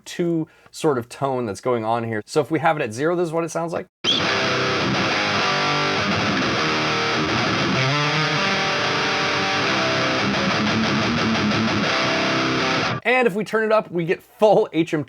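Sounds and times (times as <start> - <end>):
distorted electric guitar: 4.0 - 13.0.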